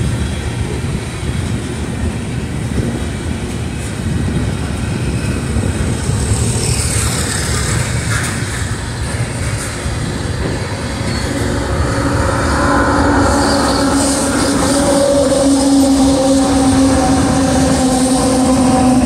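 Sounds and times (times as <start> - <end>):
freight train rumbling past: 0.0 - 19.0
steady droning tone: 6.4 - 19.0.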